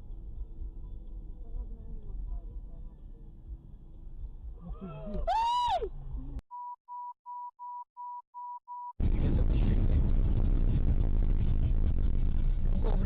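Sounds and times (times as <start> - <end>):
car road and engine noise: 0.0 - 6.4, 9.0 - 13.0
short beeps: 6.5 - 9.0.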